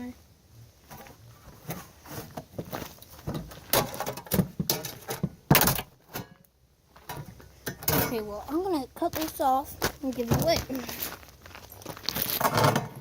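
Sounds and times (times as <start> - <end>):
refrigerator panels knocking and scraping: 3.2 - 6.3.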